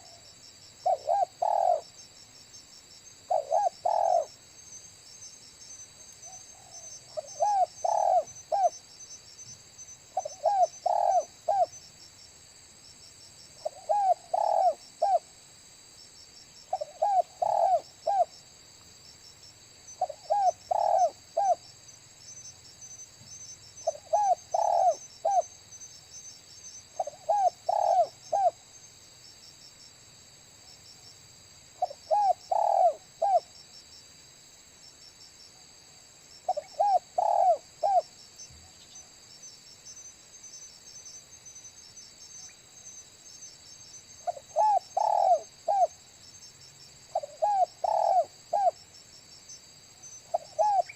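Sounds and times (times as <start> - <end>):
high-pitched insect trill: 0.0 - 50.9
dove cooing: 0.8 - 1.9, 3.3 - 4.3, 6.6 - 8.8, 10.2 - 11.7, 13.6 - 15.2, 16.7 - 18.3, 20.0 - 21.6, 23.8 - 25.5, 27.0 - 28.6, 31.8 - 33.4, 36.5 - 38.1, 44.3 - 46.0, 47.2 - 48.8, 50.3 - 50.9.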